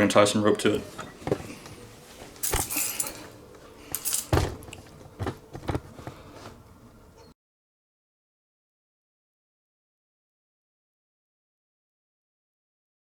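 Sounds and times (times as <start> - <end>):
metal hooks clinking: 2.3 - 5.0.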